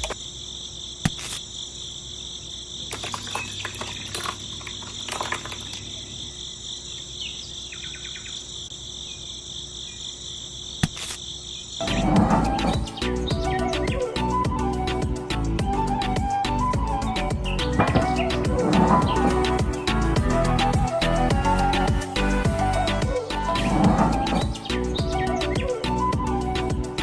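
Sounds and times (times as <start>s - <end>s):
cricket-like insect trill: 0.0s - 11.9s.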